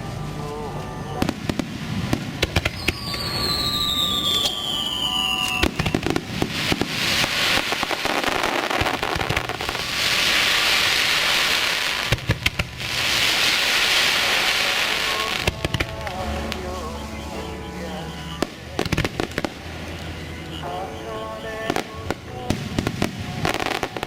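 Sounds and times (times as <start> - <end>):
firework crackling: 0.0 - 24.0
firework whistle falling: 1.2 - 12.2, 12.9 - 19.6
firework bangs: 1.2 - 24.0.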